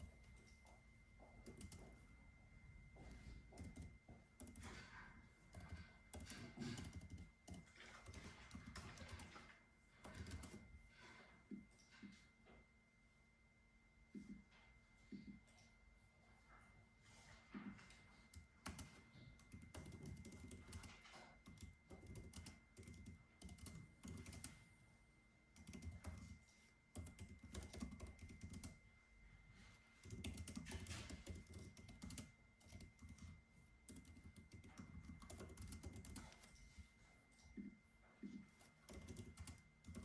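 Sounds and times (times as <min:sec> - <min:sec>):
soft typing on keyboard: 0:00.0 - 0:02.1, 0:03.0 - 0:12.1, 0:17.6 - 0:24.7, 0:25.5 - 0:28.8, 0:29.9 - 0:40.0.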